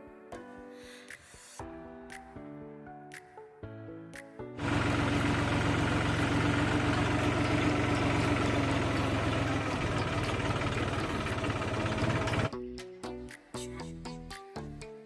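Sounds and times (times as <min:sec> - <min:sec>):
tractor engine under load: 0:04.6 - 0:12.5.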